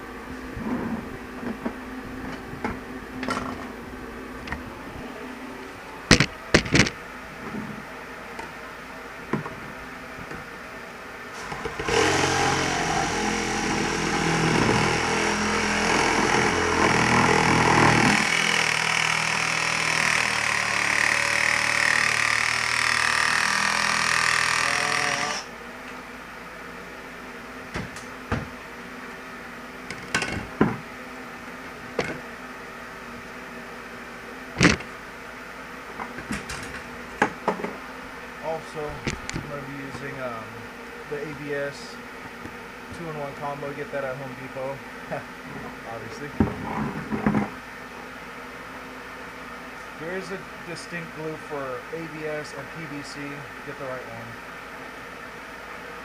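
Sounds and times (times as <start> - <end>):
power saw cutting pipe: 11.4 - 25.5.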